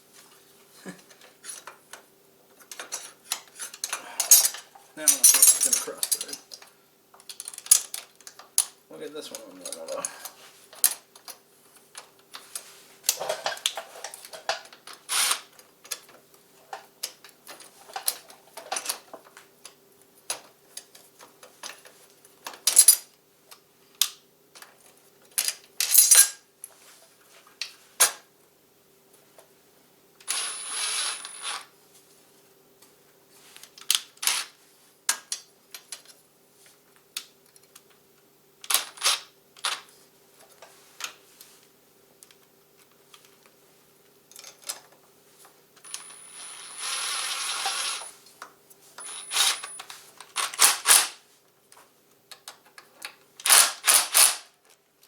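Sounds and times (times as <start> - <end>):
faint steady hum: 0.0 - 50.4
metal tools clicking and clinking: 2.7 - 6.6, 49.0 - 51.1
metal parts rattling: 2.9 - 6.4, 49.0 - 51.2.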